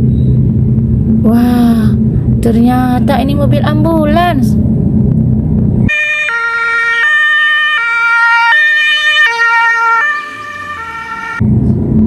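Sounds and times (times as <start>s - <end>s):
two-tone ambulance siren: 5.9s - 11.4s.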